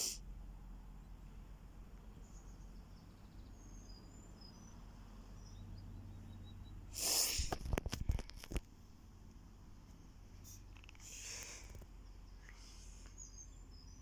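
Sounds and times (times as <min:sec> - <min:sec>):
bird chirps: 0:02.2 - 0:07.3, 0:12.0 - 0:14.0.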